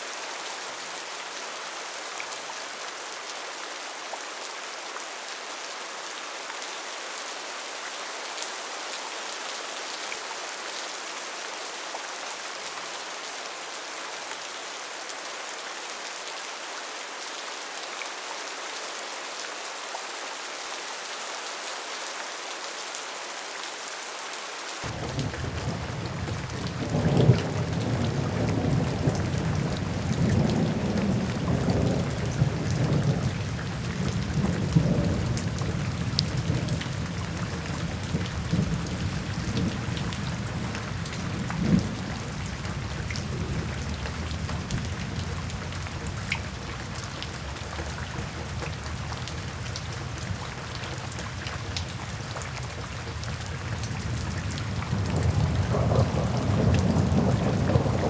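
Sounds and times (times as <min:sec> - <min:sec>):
rain on a tin roof: 0:00.0 - 0:58.0
thunder rumbling: 0:24.8 - 0:47.5, 0:53.8 - 0:58.0.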